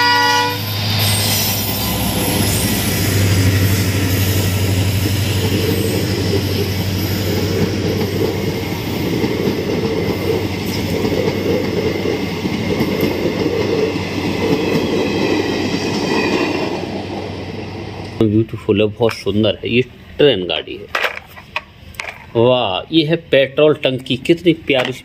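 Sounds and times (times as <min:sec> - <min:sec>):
train wheels rumbling on rails: 0:00.0 - 0:19.6
low hum: 0:00.6 - 0:13.8.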